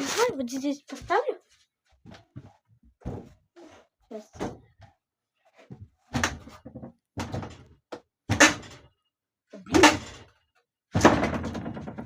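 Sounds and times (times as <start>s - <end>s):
door knocking and banging: 11.0s - 12.0s.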